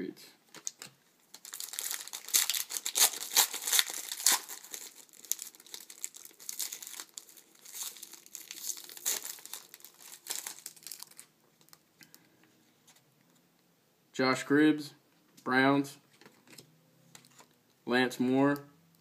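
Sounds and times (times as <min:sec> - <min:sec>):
foil wrapper crinkling: 0:00.5 - 0:11.8.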